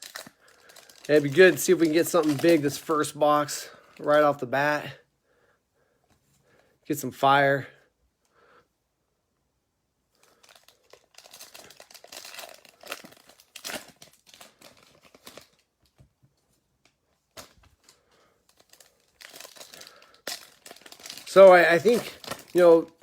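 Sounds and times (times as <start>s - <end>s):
plastic wrappers tearing and crinkling: 0.0s - 4.4s, 10.2s - 16.0s, 16.8s - 23.0s.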